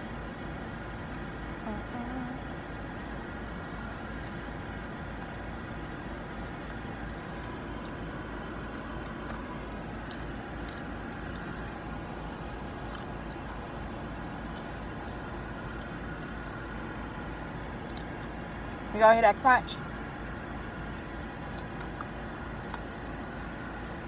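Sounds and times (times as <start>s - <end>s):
car interior hum: 0.0s - 24.0s
crunchy chewing: 8.7s - 13.8s, 14.5s - 15.2s, 20.8s - 24.0s.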